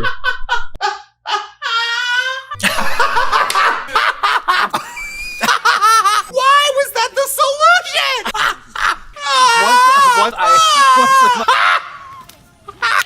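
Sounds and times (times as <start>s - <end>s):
woman laughing: 2.5s - 6.5s, 7.4s - 13.0s.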